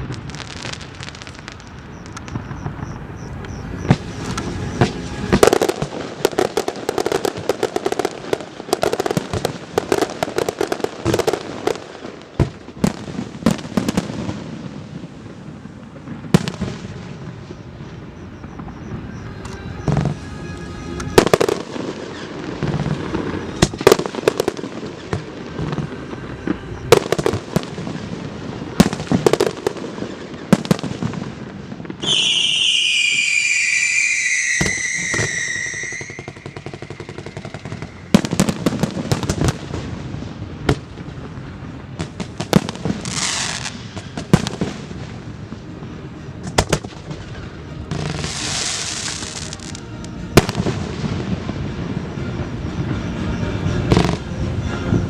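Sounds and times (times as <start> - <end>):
firework hissing rushes: 0.0 - 12.1, 19.0 - 41.7, 42.5 - 45.5, 47.2 - 51.8
firework whistle gliding downward: 0.0 - 14.8, 16.4 - 40.0, 41.0 - 55.0
firework bursts and crackles: 0.0 - 55.0.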